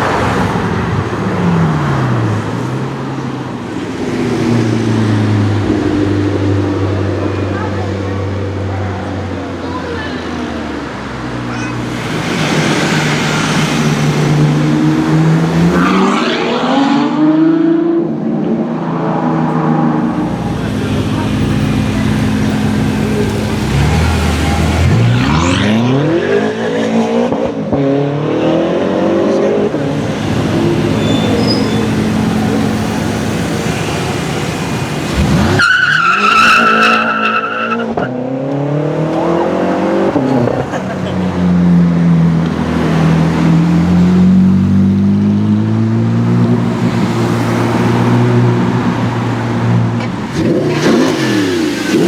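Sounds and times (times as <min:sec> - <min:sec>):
car engine accelerating: 0:00.0 - 0:18.0, 0:19.9 - 0:52.0
high-pitched squeal: 0:11.5 - 0:16.3, 0:20.2 - 0:26.0, 0:29.8 - 0:37.8.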